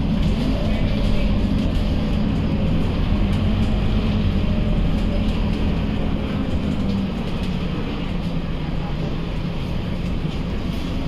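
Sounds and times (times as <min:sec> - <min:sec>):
bus diesel engine droning: 0:00.0 - 0:11.0
road noise: 0:00.0 - 0:11.0.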